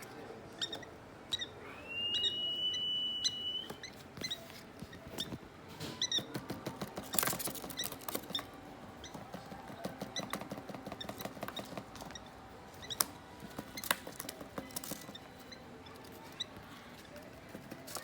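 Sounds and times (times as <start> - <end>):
birds scratching and pecking: 0.0 - 18.0
bird chicks cheeping: 0.6 - 4.5.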